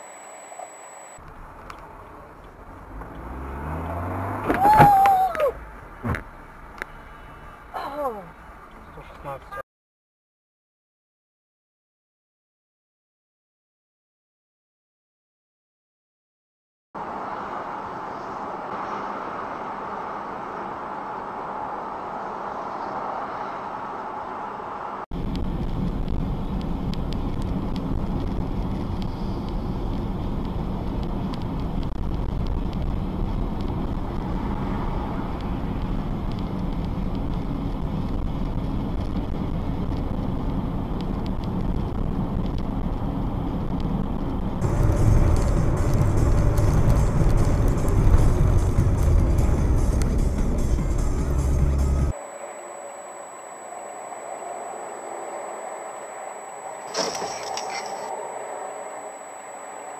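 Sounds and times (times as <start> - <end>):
steady tone: 0.0 - 1.3, 44.6 - 59.9
engine and tyre rumble: 0.1 - 9.6, 17.0 - 59.9.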